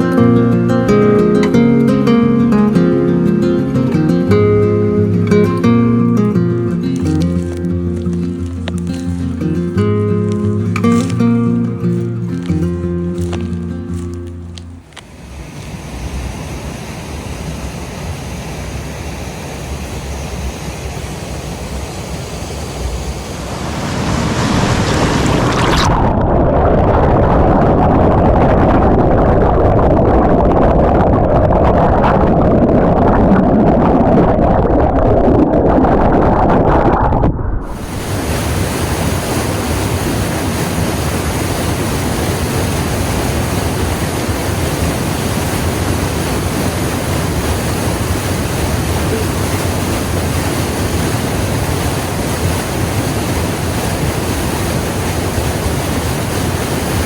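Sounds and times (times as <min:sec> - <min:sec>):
muffled rushing water: 0:00.0 - 0:57.0
waterfall hissing: 0:06.6 - 0:14.0, 0:15.1 - 0:26.0, 0:37.7 - 0:57.0.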